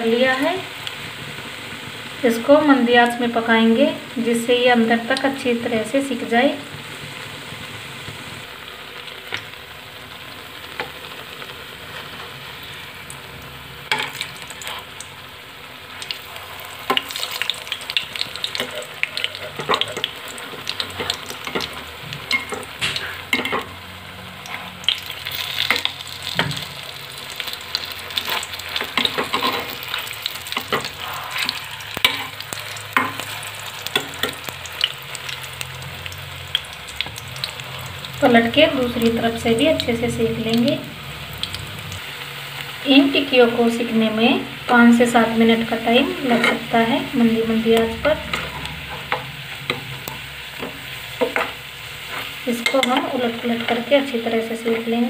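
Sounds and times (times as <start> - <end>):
patties sizzling in hot ghee: 0.0 - 55.0
metal spatula scraping pan: 28.2 - 34.4, 47.8 - 50.2.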